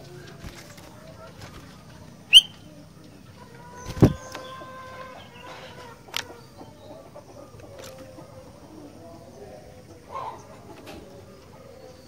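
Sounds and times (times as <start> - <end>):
bird chirp: 0.7 - 7.7.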